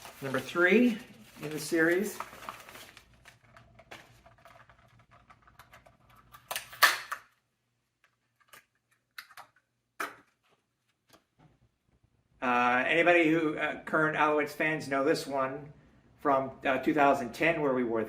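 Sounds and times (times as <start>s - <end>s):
packaging rustling: 0.0s - 6.9s.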